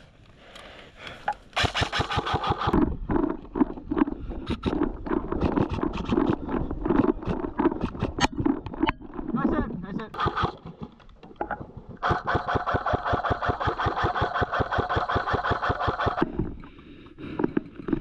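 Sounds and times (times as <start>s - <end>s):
airsoft rifle full-auto burst: 1.6s - 2.8s, 10.2s - 10.6s, 12.0s - 16.2s.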